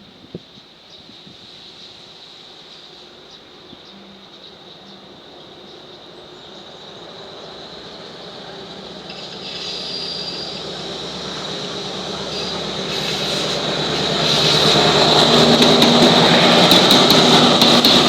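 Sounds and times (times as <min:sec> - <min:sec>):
train wheels rolling on rails: 0:00.3 - 0:18.0
high-pitched wheel squeal: 0:09.1 - 0:18.0.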